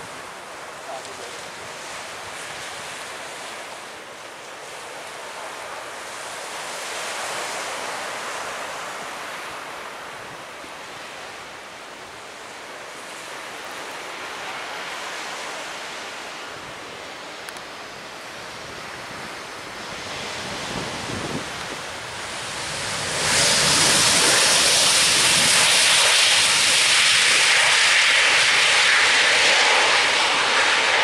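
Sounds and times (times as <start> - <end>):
surf breaking on beach: 0.0 - 11.9, 18.2 - 31.0
wind: 0.0 - 31.0.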